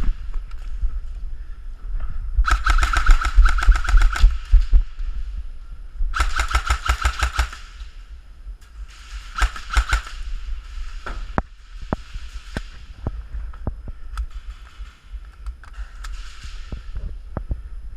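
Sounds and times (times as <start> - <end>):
low rumble: 0.0 - 17.9
airsoft gun firing bursts: 2.4 - 4.8, 6.2 - 7.8, 9.2 - 10.3.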